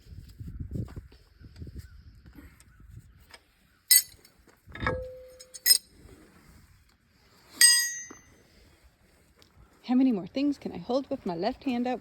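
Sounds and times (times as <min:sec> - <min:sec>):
metal tools clinking: 0:03.9 - 0:05.9, 0:07.6 - 0:08.3.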